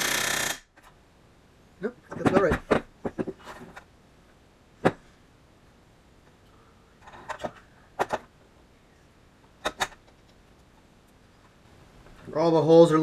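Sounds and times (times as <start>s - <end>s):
pneumatic rivet gun bursts: 0.0s - 0.8s.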